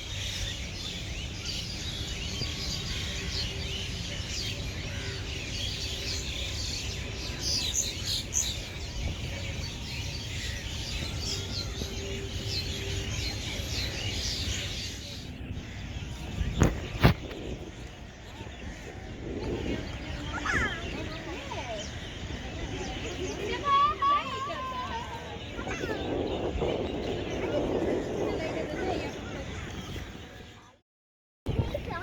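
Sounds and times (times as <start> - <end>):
small birds chirping: 0.0 - 30.8.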